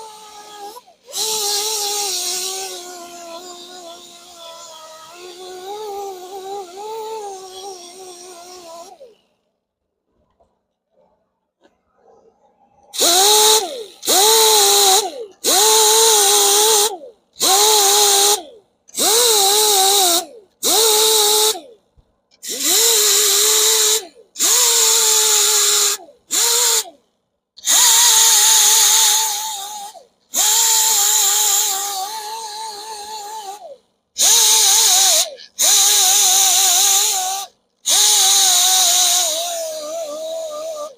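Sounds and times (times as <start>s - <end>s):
power grinder whining and grinding: 0.0s - 9.2s.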